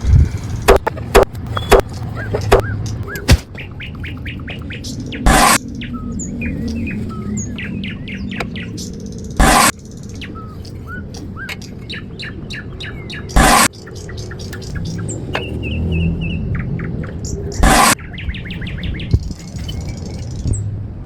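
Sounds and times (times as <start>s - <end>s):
small birds chirping: 0.3s - 20.7s
sharp knocks: 3.3s - 3.6s
loud bursts of noise: 5.2s - 5.6s, 9.4s - 9.8s.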